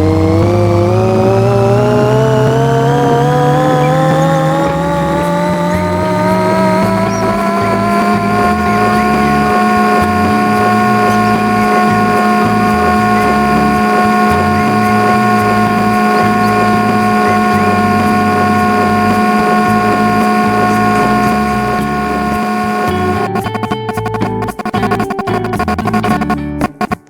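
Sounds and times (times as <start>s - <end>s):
ceiling fan motor whine: 0.0s - 26.3s.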